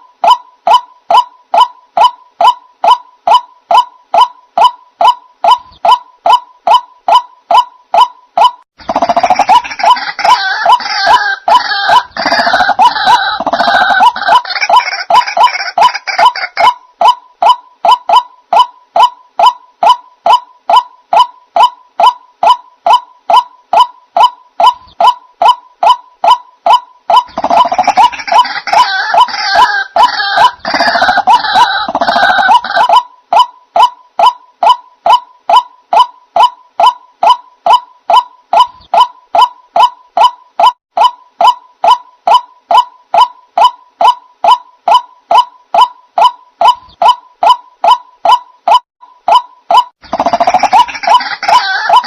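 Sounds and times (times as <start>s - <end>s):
harsh croaking bird call: 2.4s - 33.6s, 44.0s - 52.0s.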